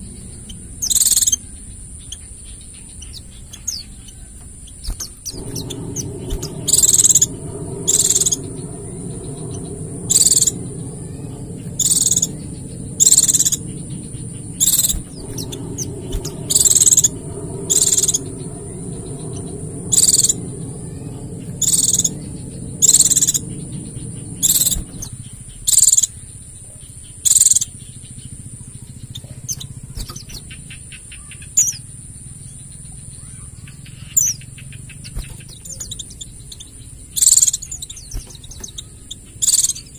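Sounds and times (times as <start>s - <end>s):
low background rumble: 0.0s - 39.9s
high-pitched drone: 5.2s - 26.3s.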